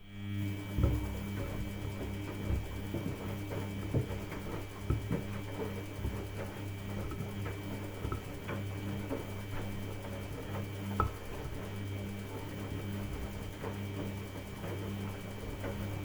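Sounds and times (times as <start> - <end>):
washing machine motor hum: 0.0 - 16.0
knocks from tumbling load: 0.8 - 9.6.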